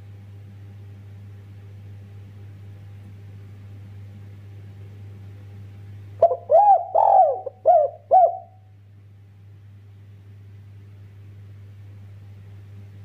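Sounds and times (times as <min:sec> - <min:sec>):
steady low hum: 0:00.0 - 0:13.0
dove cooing: 0:06.2 - 0:08.6.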